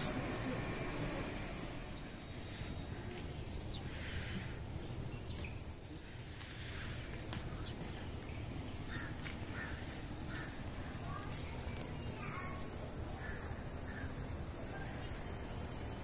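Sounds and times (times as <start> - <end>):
bird calls: 1.9 - 12.6.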